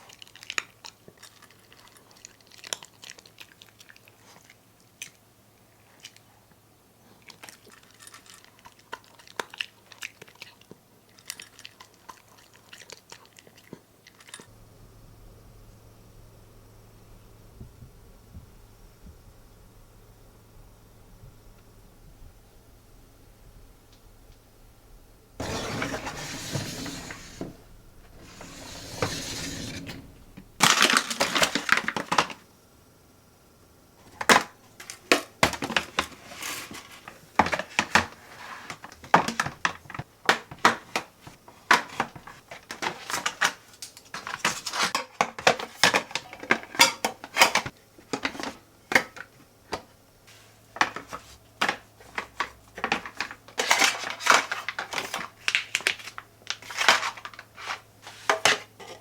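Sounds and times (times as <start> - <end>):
dishes and utensils clinking: 45.9 - 47.7.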